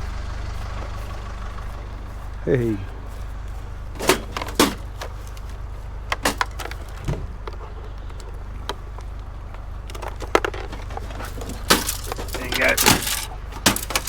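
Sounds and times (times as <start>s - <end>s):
scrap metal clattering: 0.0s - 7.8s, 9.9s - 14.0s
idling vehicle engine hum: 0.0s - 14.0s.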